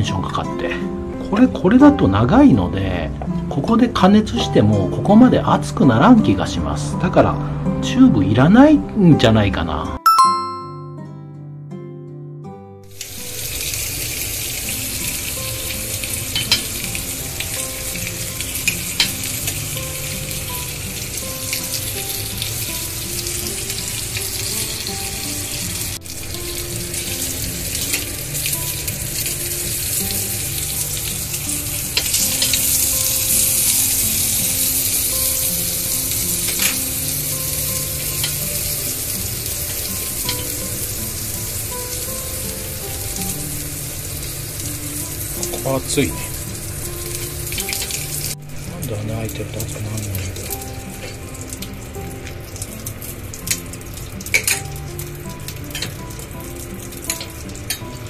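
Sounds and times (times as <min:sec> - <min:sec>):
quiet background melody: 0:00.0 - 0:58.0
sausages sizzling in a pan: 0:12.9 - 0:58.0.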